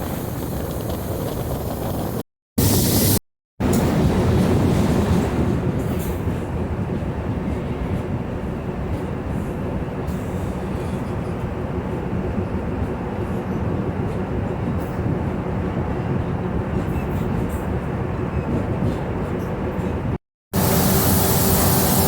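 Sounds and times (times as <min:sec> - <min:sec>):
train rumbling on rails: 0:00.0 - 0:22.0.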